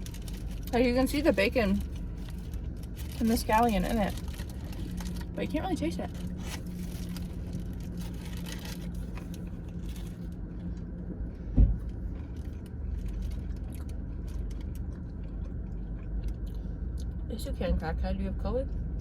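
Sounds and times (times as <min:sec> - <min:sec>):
car cabin rumble: 0:00.0 - 0:19.0
low hum: 0:00.0 - 0:19.0
sharp thump: 0:11.5 - 0:11.8.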